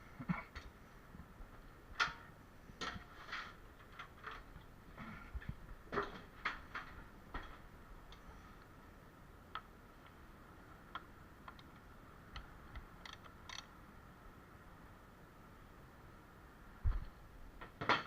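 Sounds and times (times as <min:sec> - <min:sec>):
faint steady background noise: 0:00.0 - 0:18.0.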